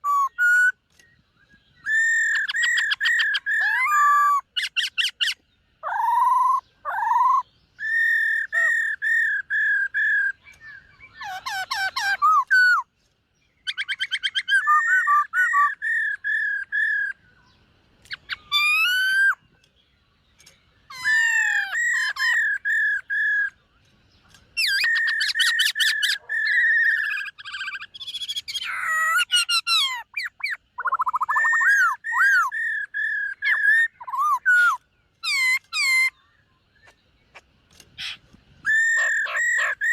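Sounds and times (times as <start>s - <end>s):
bird singing whistled phrases: 0.0s - 12.9s, 13.6s - 19.6s, 20.4s - 23.7s, 24.3s - 37.0s, 38.0s - 39.9s.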